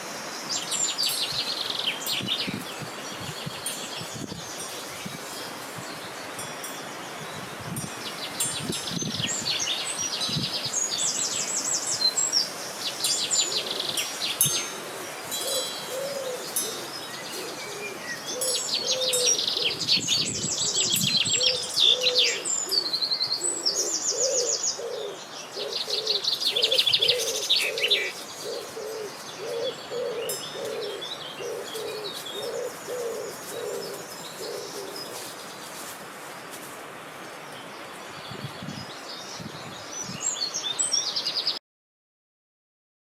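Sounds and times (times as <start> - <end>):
small birds trilling and chirping: 0.0 - 36.2, 37.1 - 41.6
low cooing call: 13.3 - 35.3.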